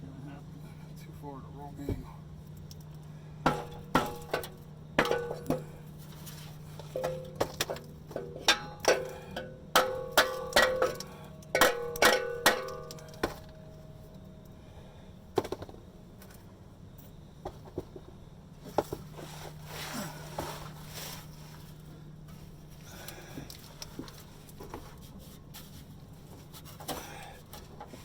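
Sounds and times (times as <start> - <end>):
hammer striking metal pipe: 3.5 - 5.6, 8.4 - 13.6.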